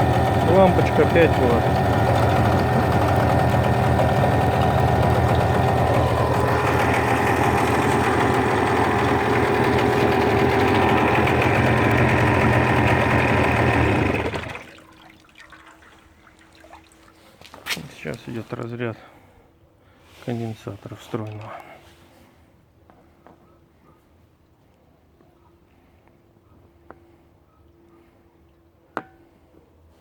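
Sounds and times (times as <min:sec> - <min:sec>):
outboard motor idling: 0:00.0 - 0:15.1.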